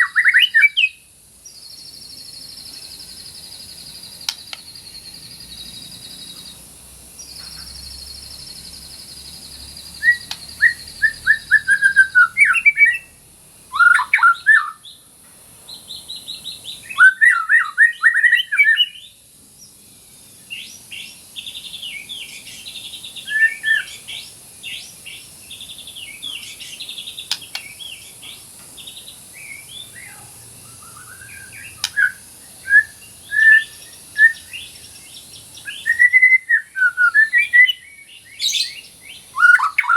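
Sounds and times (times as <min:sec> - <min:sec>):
bird singing whistled phrases: 0:00.0 - 0:01.0, 0:10.0 - 0:14.9, 0:16.8 - 0:19.2, 0:20.6 - 0:24.8, 0:29.4 - 0:39.9.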